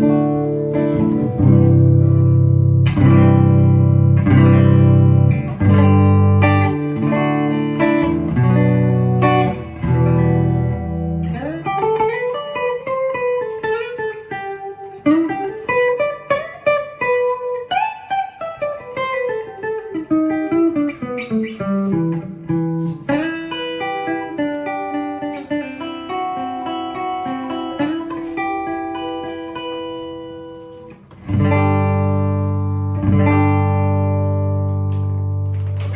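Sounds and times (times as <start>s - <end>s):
electric guitar playing: 0.0s - 35.9s.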